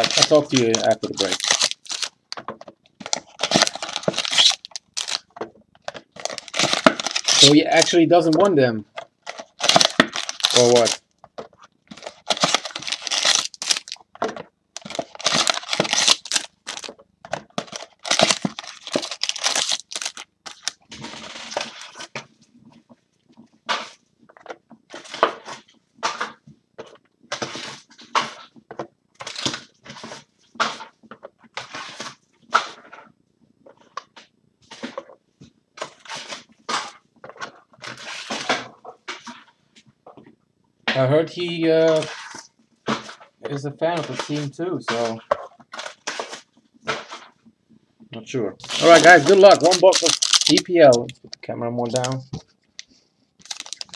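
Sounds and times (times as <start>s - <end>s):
card packaging crinkling and tearing: 0.0s - 2.4s, 3.0s - 11.1s, 11.9s - 14.1s, 14.8s - 22.2s, 29.2s - 30.2s, 48.6s - 53.9s.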